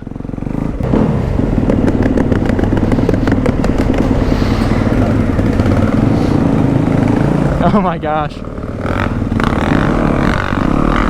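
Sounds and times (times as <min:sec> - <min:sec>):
dirt bike engine high revs: 0:00.0 - 0:11.0
rapid clatter of knocks: 0:01.5 - 0:06.4.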